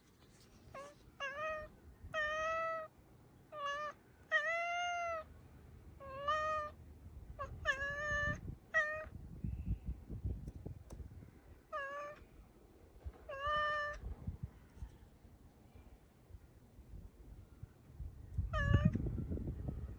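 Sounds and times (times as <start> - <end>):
cat meowing and chirping: 0.7 - 2.9, 3.5 - 5.3, 6.0 - 6.8, 7.4 - 9.2, 11.7 - 12.3, 13.3 - 14.0, 18.4 - 19.1.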